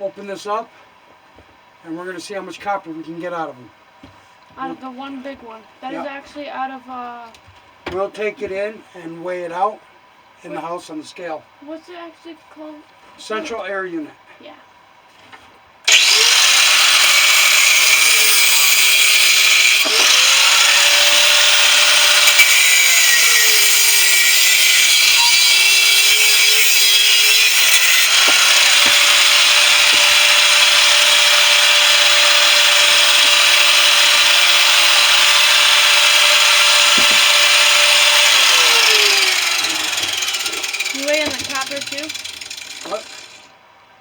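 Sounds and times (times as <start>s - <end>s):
power tool cutting metal: 15.9s - 43.5s.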